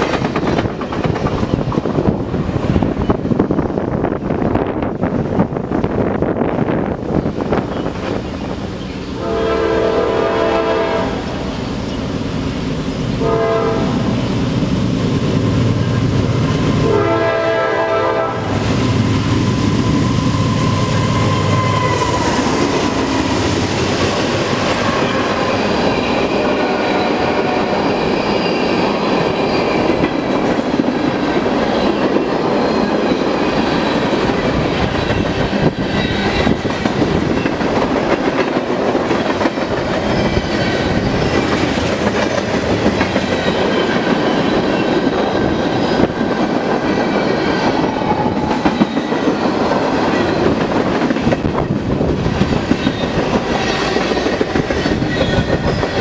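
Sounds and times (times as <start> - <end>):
rail cars clattering by: 0.0 - 56.0
locomotive horn: 9.2 - 11.5, 13.2 - 14.2, 16.8 - 18.6.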